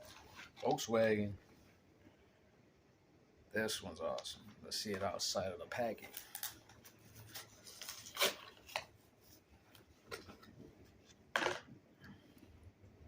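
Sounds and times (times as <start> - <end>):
plastic packaging crinkling: 6.0 - 8.9
packaging ripping: 7.3 - 8.8.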